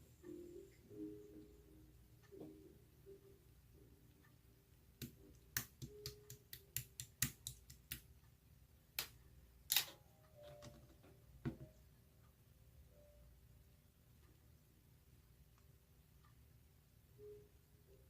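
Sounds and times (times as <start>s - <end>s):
sharp small clicks and taps: 5.0s - 8.1s.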